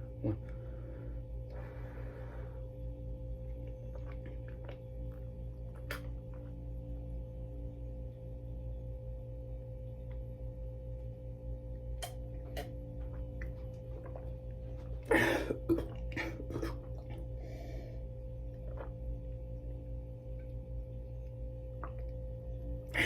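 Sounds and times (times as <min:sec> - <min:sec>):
person gulping and swallowing: 0:00.0 - 0:00.6, 0:03.5 - 0:06.7, 0:12.0 - 0:17.7, 0:18.4 - 0:20.6, 0:21.7 - 0:23.0
steady low hum: 0:00.0 - 0:23.0.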